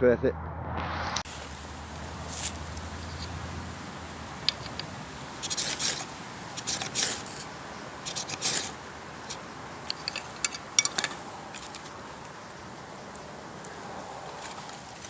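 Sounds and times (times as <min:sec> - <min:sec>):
rucksack scraping rubs: 0:00.8 - 0:12.4.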